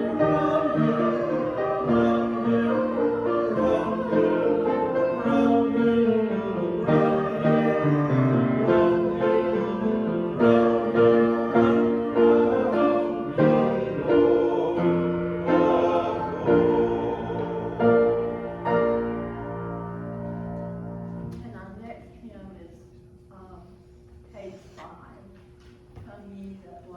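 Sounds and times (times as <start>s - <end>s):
voices singing: 0.0s - 20.4s
hymn on keyboard: 0.0s - 21.3s.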